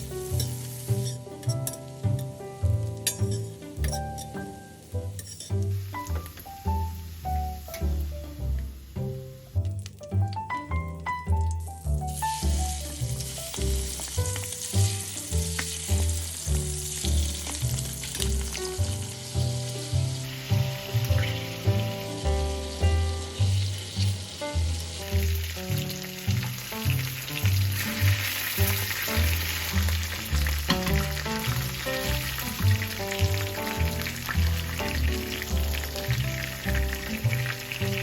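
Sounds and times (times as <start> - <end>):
food sizzling in a pan: 0.0 - 10.2, 11.6 - 38.0
background music with bass line: 0.0 - 38.0.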